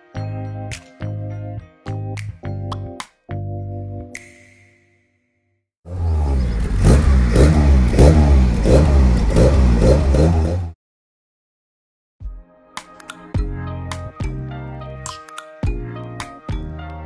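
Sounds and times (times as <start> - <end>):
car engine revving: 5.9 - 10.8.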